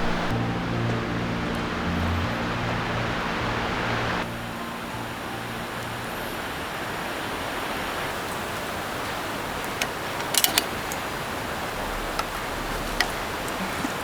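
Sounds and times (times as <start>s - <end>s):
steady rushing hiss: 0.0s - 14.0s
sharp clicks: 9.7s - 13.6s.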